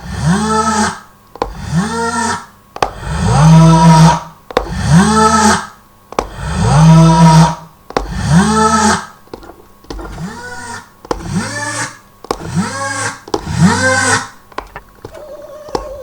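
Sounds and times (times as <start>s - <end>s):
drum pad taps: 1.4s - 1.6s, 2.8s - 3.0s, 4.5s - 4.8s, 6.1s - 6.4s, 7.9s - 8.2s, 11.0s - 11.4s.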